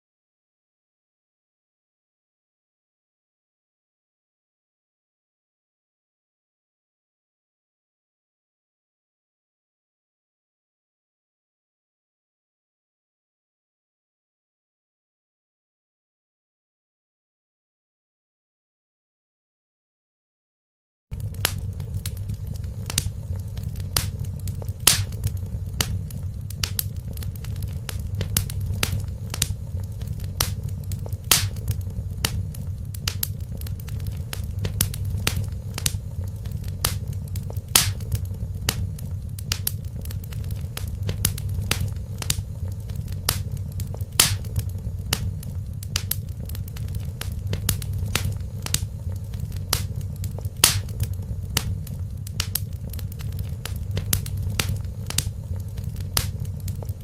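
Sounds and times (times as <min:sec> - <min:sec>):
wood fire crackling: 0:21.1 - 0:57.0.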